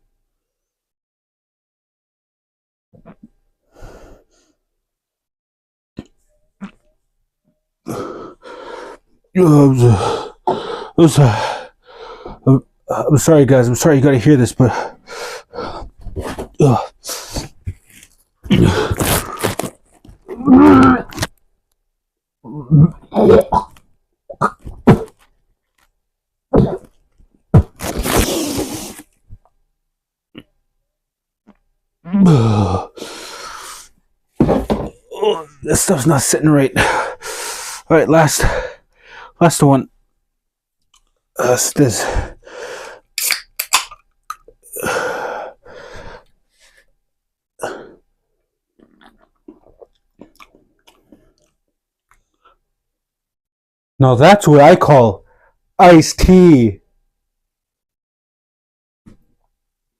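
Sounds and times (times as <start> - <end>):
man retching and gagging: 3.0 - 3.3, 6.0 - 6.9, 9.4 - 11.6, 14.6 - 21.4, 22.4 - 25.2, 26.5 - 28.8, 31.4 - 33.0, 34.4 - 37.1, 43.2 - 45.6, 48.8 - 51.2
sipping and swallowing clicks: 48.8 - 52.2.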